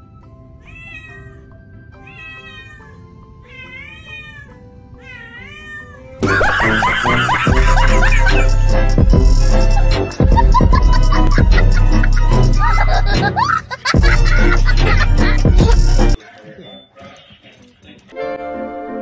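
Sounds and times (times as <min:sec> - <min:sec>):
cat meowing: 0:00.6 - 0:06.2
loud music: 0:06.2 - 0:16.2.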